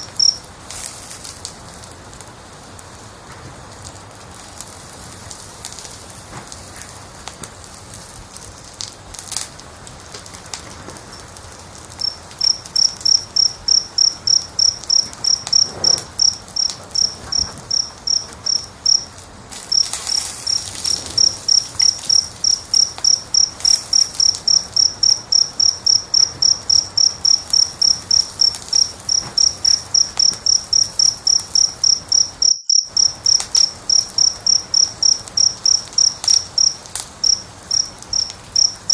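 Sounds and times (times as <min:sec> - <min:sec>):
cricket chirping: 0:00.0 - 0:00.5, 0:11.0 - 0:38.9
wood fire crackling: 0:00.0 - 0:38.9.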